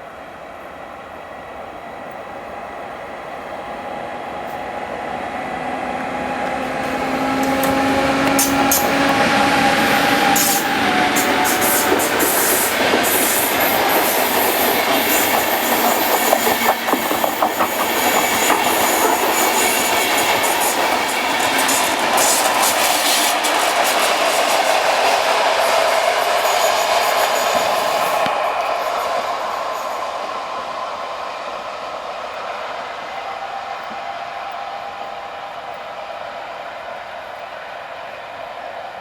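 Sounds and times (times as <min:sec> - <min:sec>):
electric train passing: 0:00.0 - 0:39.0.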